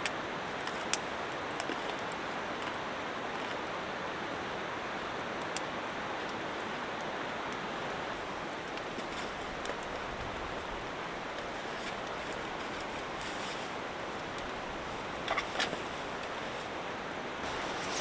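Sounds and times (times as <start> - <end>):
wood fire hissing and crackling: 0.0 - 18.0.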